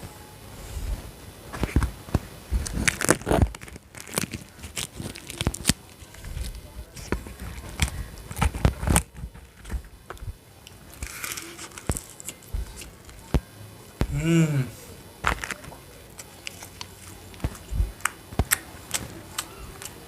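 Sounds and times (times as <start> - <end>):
person humming: 14.0 - 14.9.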